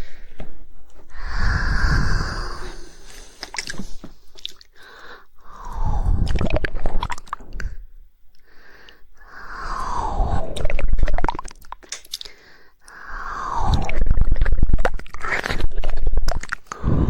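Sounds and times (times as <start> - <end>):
wet tongue clicking: 10.6 - 13.0, 13.6 - 16.8.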